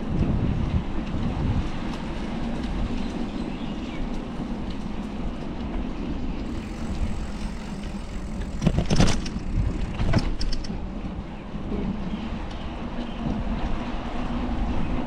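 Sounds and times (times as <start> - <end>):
wind and road rumble: 0.0 - 15.0
bicycle rattling: 1.0 - 12.0
bicycle clattering over bumps: 1.6 - 11.8.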